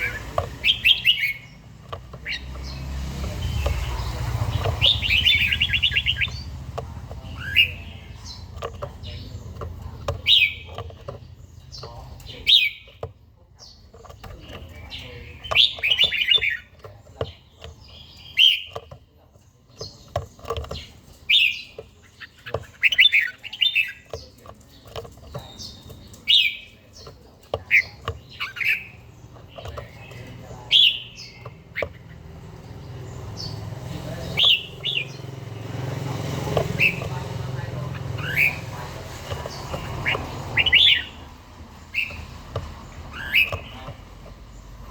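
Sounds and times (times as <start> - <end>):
bird call notes: 0.0 - 8.6.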